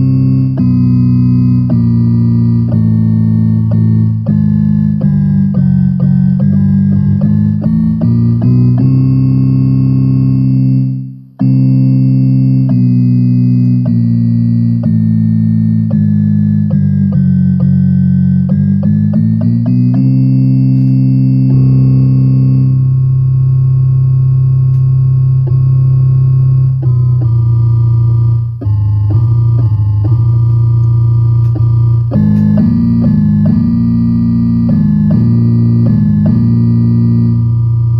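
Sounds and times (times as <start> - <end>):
electronic keyboard sustained notes: 0.0 - 37.9
higher synth melody line: 0.0 - 37.9.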